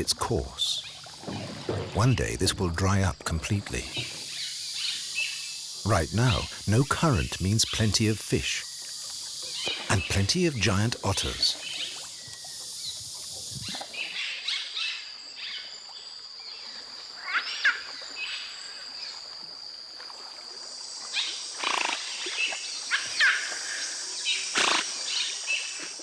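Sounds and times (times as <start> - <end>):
otters calling: 0.0 - 0.9, 5.9 - 8.6, 9.6 - 11.6
high insect drone: 0.0 - 26.0.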